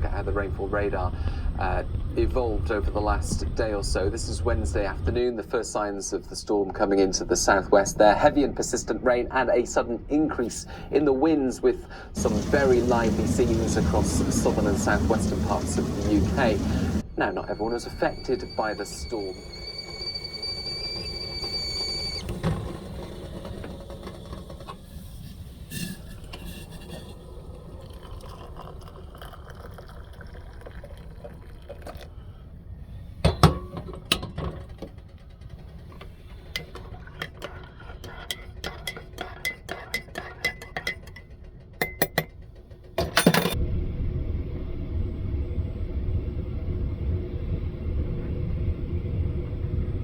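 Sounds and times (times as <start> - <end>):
steady low rumble: 0.0 - 21.2, 43.5 - 50.0
dishes and cutlery clinking: 36.6 - 42.4.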